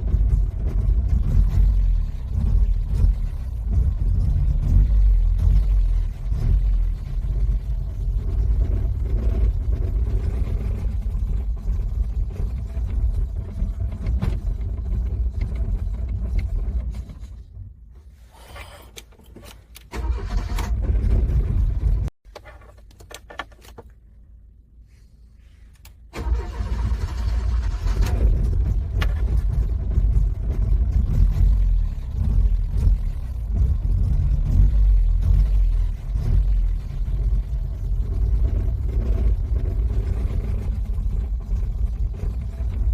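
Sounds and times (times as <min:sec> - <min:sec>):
car engine cranking: 0:00.0 - 0:24.0, 0:25.8 - 0:42.9.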